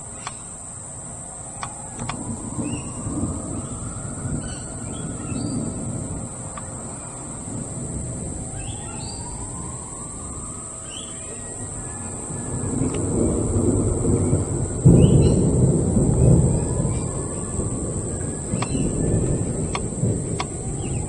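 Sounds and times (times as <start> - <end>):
insects droning: 0.0 - 21.0
low outdoor rumble: 0.0 - 21.0
bird chirps: 8.5 - 9.4, 18.5 - 19.2.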